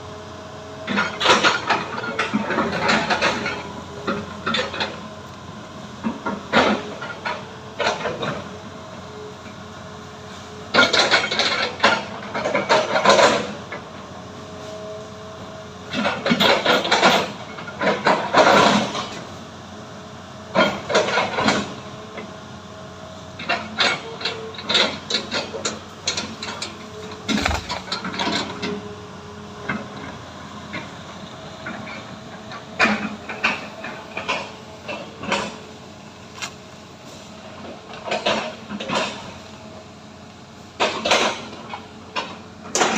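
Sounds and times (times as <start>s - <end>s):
diesel engine running: 0.0s - 40.8s
clanking and rattling: 26.1s - 28.4s.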